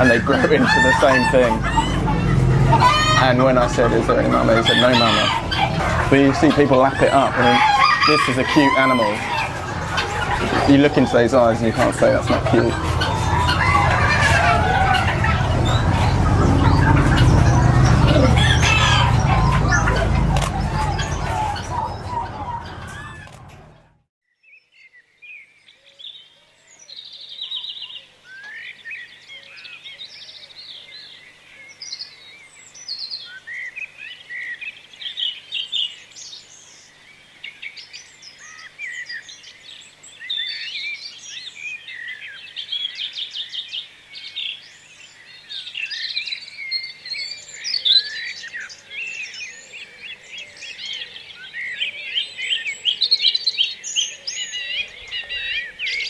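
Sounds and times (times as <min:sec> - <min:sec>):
loud jumble of noise: 0:00.0 - 0:23.8
small birds chirping and trilling: 0:00.0 - 0:56.0.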